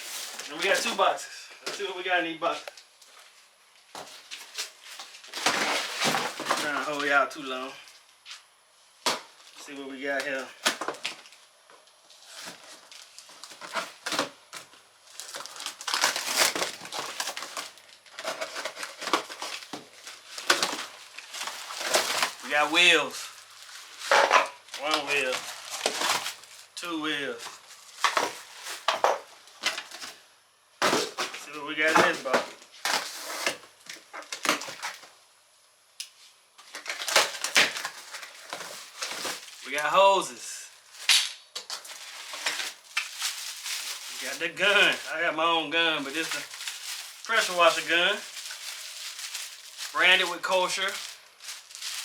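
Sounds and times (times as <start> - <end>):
packaging crinkling and tearing: 0.0 - 1.2, 4.1 - 7.1, 12.2 - 30.2, 30.8 - 35.1, 36.6 - 39.9, 40.7 - 45.2, 45.8 - 52.0.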